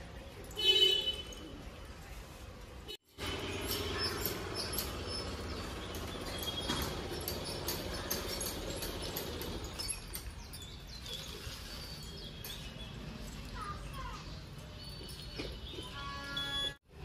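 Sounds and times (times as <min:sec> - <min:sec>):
small birds chirping: 0:03.5 - 0:16.1.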